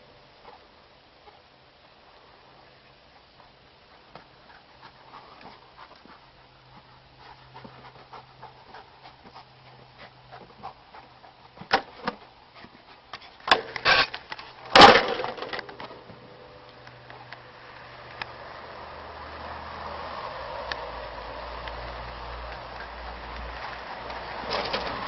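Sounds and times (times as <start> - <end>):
dog panting: 2.8 - 13.5.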